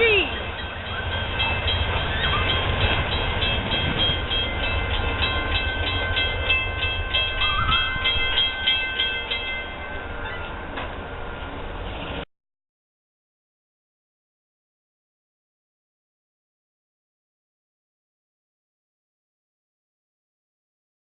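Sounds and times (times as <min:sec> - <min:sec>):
high-pitched train tones: 0:00.0 - 0:11.9
train rumbling past: 0:00.0 - 0:12.3.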